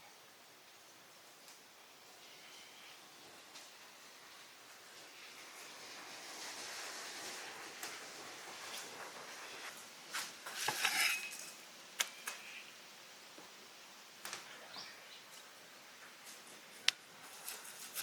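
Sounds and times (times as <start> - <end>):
utensils clinking against cookware: 10.5 - 11.6.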